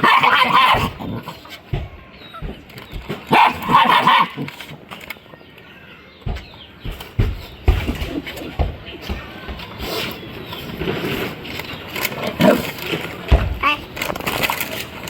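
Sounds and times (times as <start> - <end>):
puppies barking: 0.0 - 5.2
knocks and thumps: 0.4 - 5.1, 6.2 - 9.9, 10.6 - 15.0.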